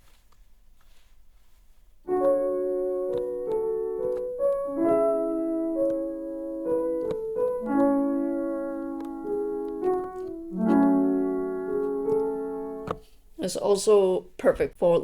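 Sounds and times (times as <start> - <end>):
lo-fi keys playing chords: 2.1 - 13.0.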